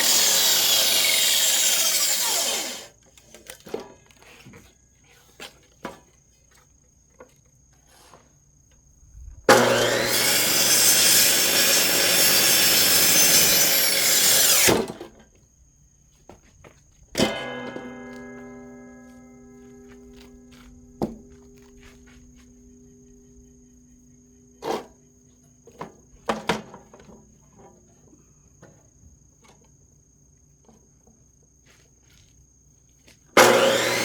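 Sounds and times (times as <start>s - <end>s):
cut-off saw cutting wood: 0.0s - 3.0s, 9.5s - 15.0s, 17.2s - 23.2s, 33.4s - 34.0s.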